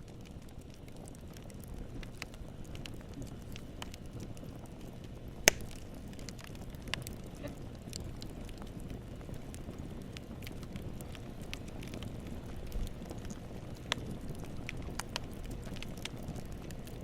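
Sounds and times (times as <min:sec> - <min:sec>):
low rumble of flames: 0:00.0 - 0:17.0
crackles of splitting wood: 0:00.6 - 0:17.0
loud sharp fire pop: 0:05.4 - 0:05.8.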